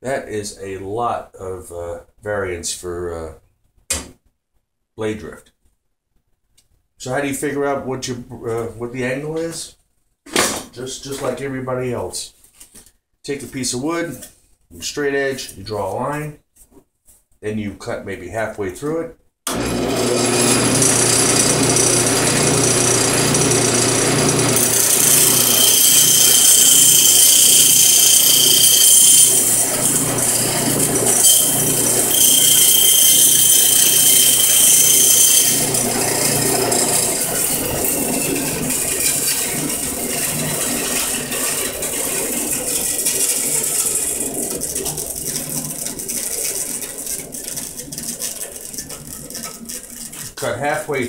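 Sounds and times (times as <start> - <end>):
band saw cutting wood: 19.5 - 51.0.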